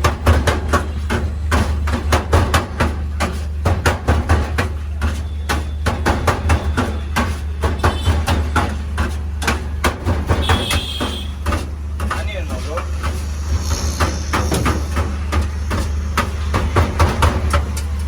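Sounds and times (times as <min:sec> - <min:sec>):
steady low hum: 0:11.2 - 0:18.0.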